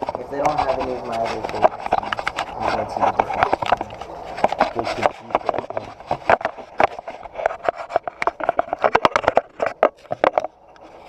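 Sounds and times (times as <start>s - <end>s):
clicks and knocks of handling: 0.0s - 10.9s.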